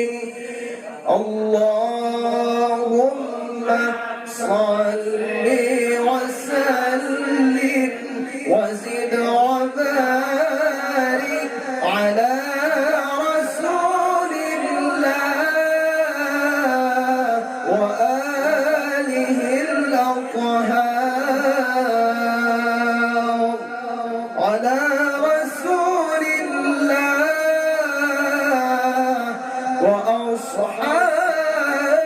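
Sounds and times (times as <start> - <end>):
man chanting: 0.0 - 32.0.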